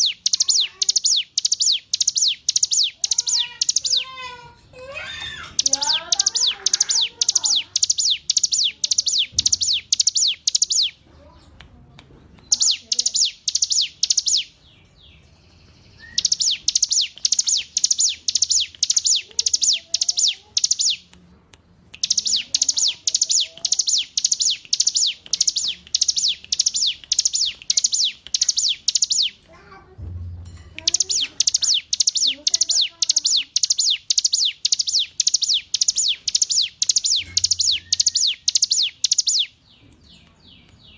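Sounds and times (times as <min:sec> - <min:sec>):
bird singing high notes: 0:15.9 - 0:21.0, 0:30.8 - 0:39.5.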